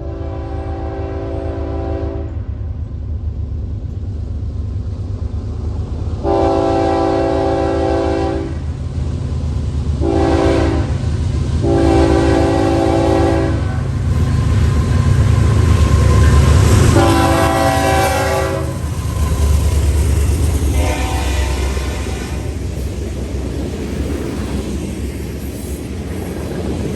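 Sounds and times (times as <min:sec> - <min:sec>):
locomotive air horn blasts: 0:00.0 - 0:02.3, 0:06.2 - 0:08.6, 0:10.0 - 0:11.0, 0:11.6 - 0:14.0, 0:16.8 - 0:18.9, 0:20.6 - 0:22.6
train rumbling: 0:00.0 - 0:26.9.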